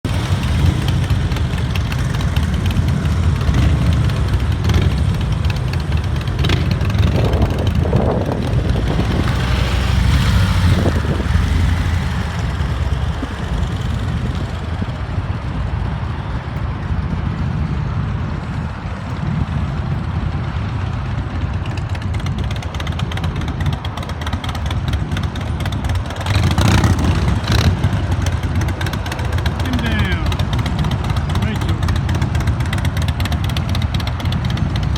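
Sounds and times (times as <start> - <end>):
motorcycle engines rumbling: 0.0 - 34.9.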